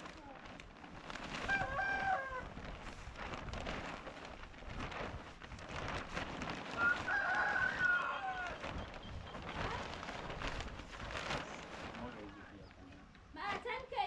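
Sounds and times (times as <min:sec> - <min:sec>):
rooster crowing: 0:01.5 - 0:02.5, 0:06.8 - 0:08.6.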